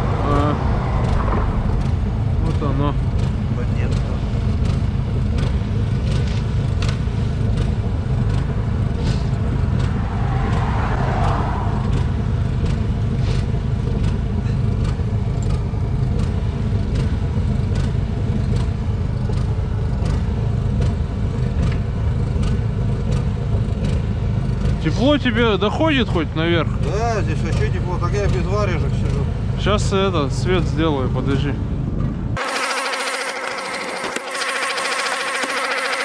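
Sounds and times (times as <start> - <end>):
motor droning: 0.0 - 15.0, 32.4 - 36.0.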